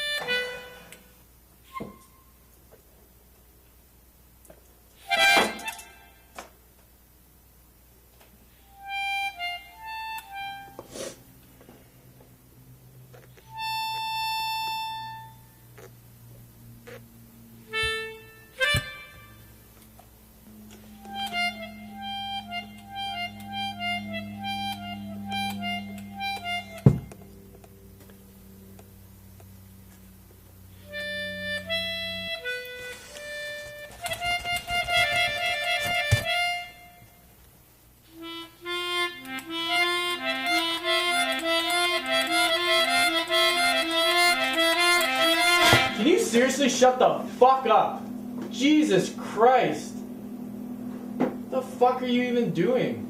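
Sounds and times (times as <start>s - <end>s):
reed wind instrument notes: 0.0s - 2.2s, 20.5s - 27.2s, 30.7s - 37.2s, 38.0s - 53.0s.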